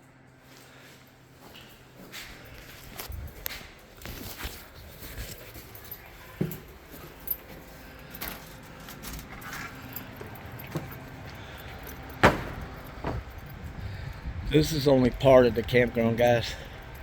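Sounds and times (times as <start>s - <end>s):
footsteps: 0.3s - 14.2s
light metallic jingling: 4.6s - 17.0s
sharp loud knock: 12.2s - 13.2s.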